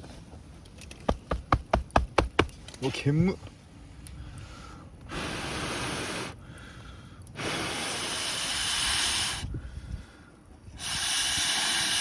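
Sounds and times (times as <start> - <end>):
butane torch hissing: 5.0 - 6.6, 7.2 - 9.7, 10.7 - 12.0.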